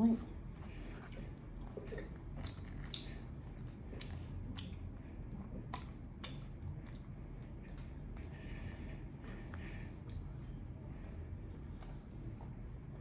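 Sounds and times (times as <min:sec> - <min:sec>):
person chewing with mouth clicks: 0:01.0 - 0:08.4.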